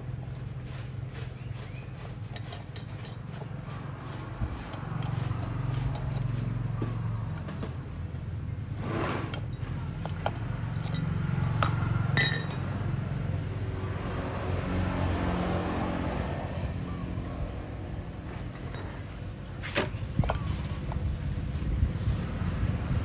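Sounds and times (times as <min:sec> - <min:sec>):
metallic clinks and taps: 0:05.0 - 0:06.5, 0:09.3 - 0:13.3, 0:18.6 - 0:19.2
sharp ringing metal clink: 0:09.5 - 0:13.3, 0:18.7 - 0:19.1.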